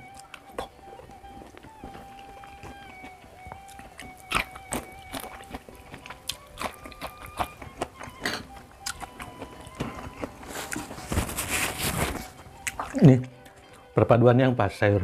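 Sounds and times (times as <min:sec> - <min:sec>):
close-up chewing: 0:00.0 - 0:14.0
soft background music: 0:00.0 - 0:15.0
wet mouth clicks and smacks: 0:01.5 - 0:07.9.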